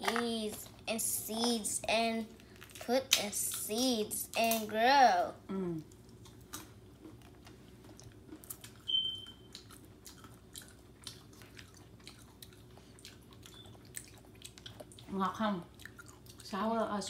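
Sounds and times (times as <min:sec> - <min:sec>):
child chewing orange: 0:02.3 - 0:04.4, 0:05.6 - 0:16.6.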